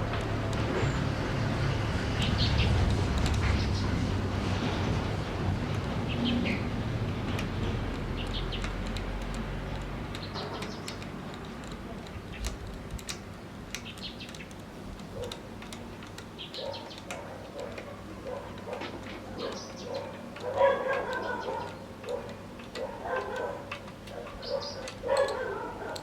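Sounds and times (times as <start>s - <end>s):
small birds chirping: 2.0s - 4.0s, 6.0s - 6.8s, 8.0s - 26.0s
sharp clicks and taps: 5.5s - 26.0s.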